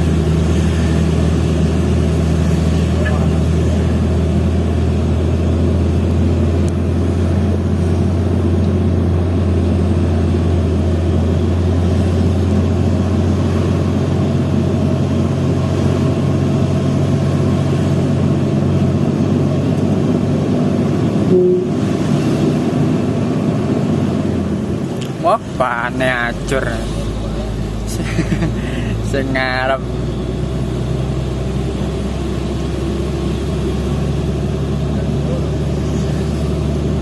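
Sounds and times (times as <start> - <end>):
truck diesel engine running: 0.0 - 37.0
brief higher tone: 21.3 - 21.8.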